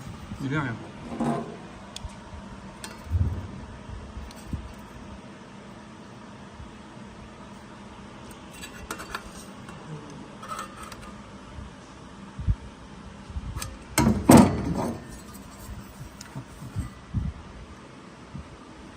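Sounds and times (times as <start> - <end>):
loud clatter and thud: 14.0 - 15.1.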